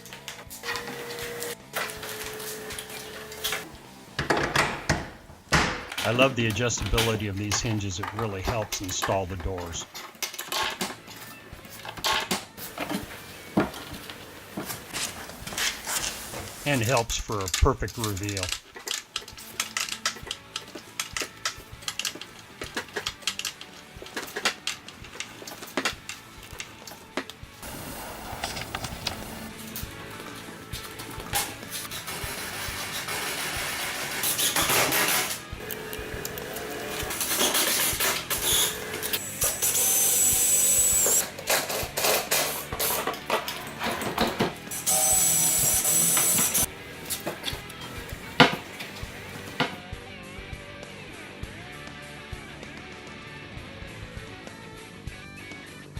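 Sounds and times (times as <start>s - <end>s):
power drill whining: 31.6s - 41.5s, 44.6s - 46.7s.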